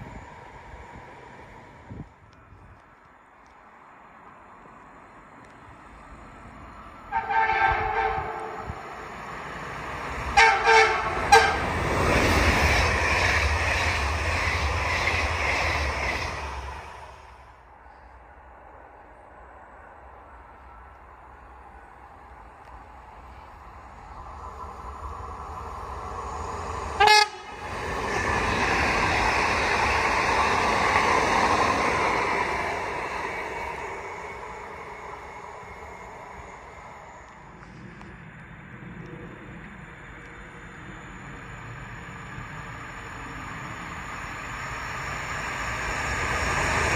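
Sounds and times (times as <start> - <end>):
train passing with rumbling rush: 0.0 - 46.9
train horn toots: 7.1 - 9.2, 10.3 - 11.8, 27.0 - 27.6.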